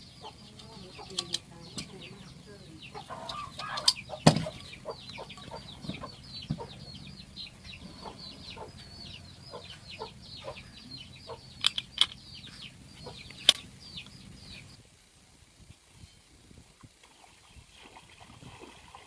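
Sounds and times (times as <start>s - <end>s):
birds chirping: 0.0s - 14.8s
sharp clicks: 0.5s - 2.0s, 3.2s - 5.6s, 11.3s - 14.2s.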